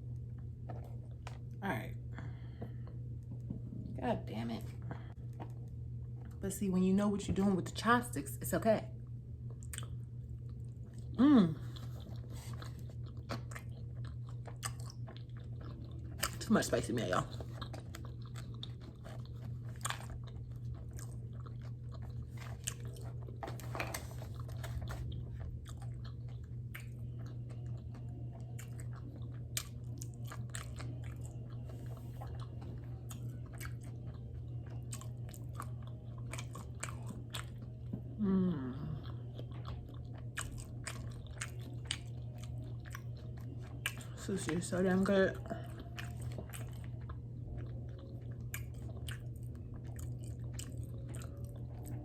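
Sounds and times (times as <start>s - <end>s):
steady low hum: 0.0s - 52.0s
chewing with wet mouth clicks: 9.4s - 38.2s, 38.9s - 52.0s
hummed voice sound: 11.0s - 11.9s, 37.7s - 39.5s.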